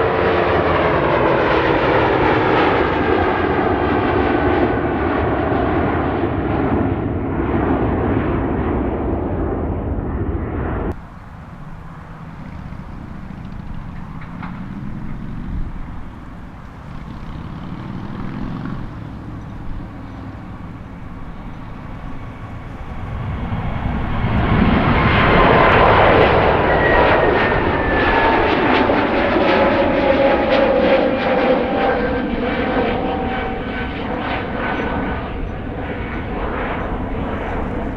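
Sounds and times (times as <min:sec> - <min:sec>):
jet engine rumble: 0:00.0 - 0:37.9
engine whine sliding down: 0:08.4 - 0:37.0.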